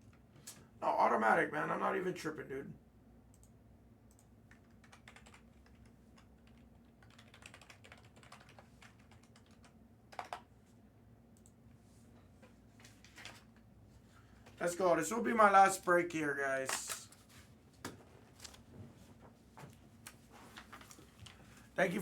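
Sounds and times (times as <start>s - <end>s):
faint keyboard typing: 3.3s - 13.7s, 16.6s - 21.6s.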